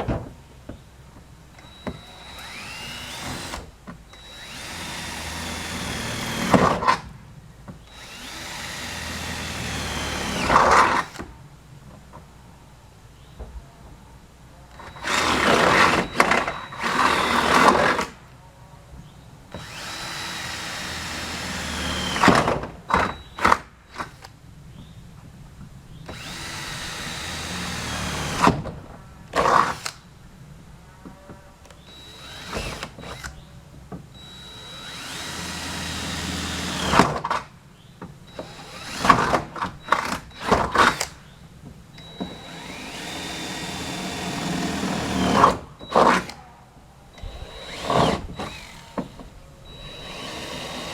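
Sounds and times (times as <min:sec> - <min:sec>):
electric drill boring through metal: 0:01.6 - 0:06.8, 0:07.9 - 0:11.2, 0:14.8 - 0:18.1, 0:19.6 - 0:22.5, 0:26.1 - 0:28.5, 0:31.8 - 0:33.4, 0:34.2 - 0:37.2, 0:38.3 - 0:41.1, 0:42.0 - 0:46.4, 0:47.2 - 0:50.9.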